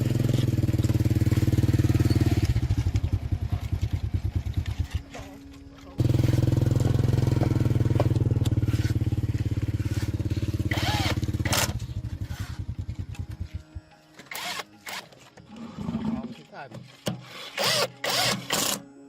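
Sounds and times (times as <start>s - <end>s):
diesel engine running: 0.0s - 13.8s.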